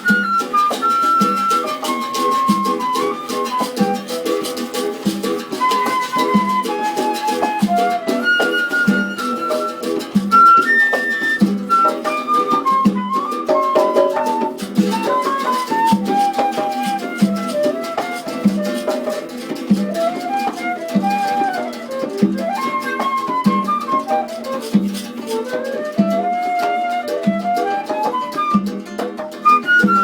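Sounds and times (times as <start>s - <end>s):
sharp percussive clicks: 0.0s - 26.0s.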